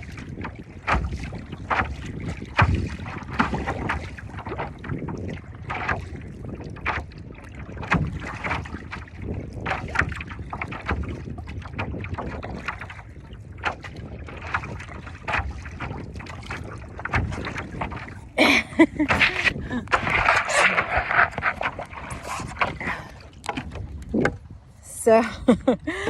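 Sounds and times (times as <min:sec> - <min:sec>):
water splashing around paddleboard: 0:00.0 - 0:26.0
wind buffeting microphone: 0:00.0 - 0:26.0.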